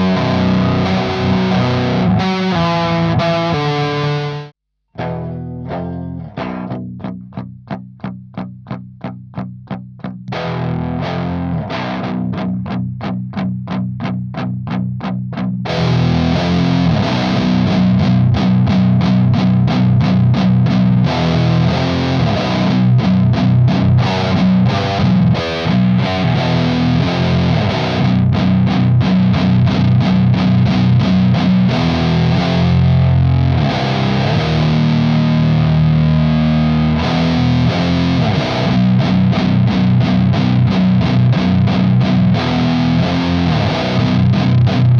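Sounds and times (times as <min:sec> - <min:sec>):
distorted electric guitar riff: 0:00.0 - 0:44.9.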